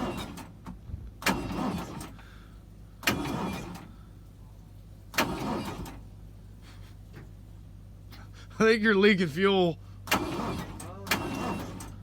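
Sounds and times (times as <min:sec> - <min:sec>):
car engine cranking: 0:00.0 - 0:07.4, 0:10.0 - 0:12.0.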